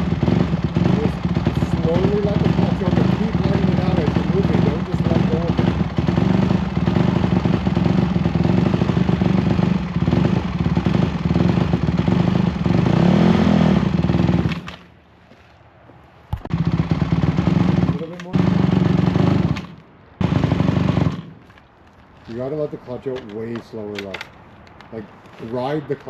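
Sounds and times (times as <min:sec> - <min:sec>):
dirt bike engine revving: 0:00.0 - 0:14.7, 0:16.5 - 0:21.4.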